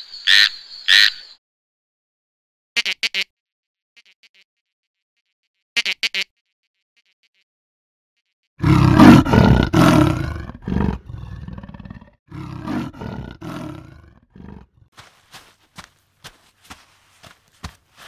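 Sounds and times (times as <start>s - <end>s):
leopard growling: 8.6s - 14.9s
slow footsteps: 12.5s - 18.0s.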